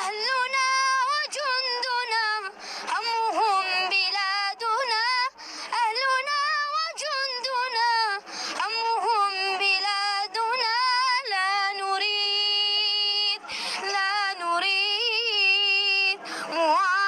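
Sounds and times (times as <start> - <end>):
singer breathing: 2.5 - 2.9, 5.4 - 5.8, 8.2 - 8.6, 13.4 - 13.8, 16.2 - 16.6.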